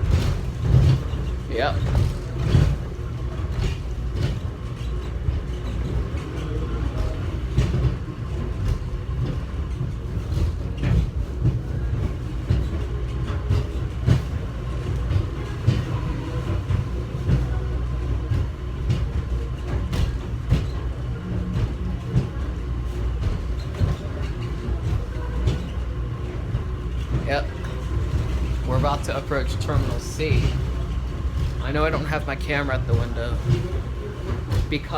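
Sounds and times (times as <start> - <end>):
clanks and knocks: 0.0 - 34.9
subway train rumble: 0.0 - 34.9.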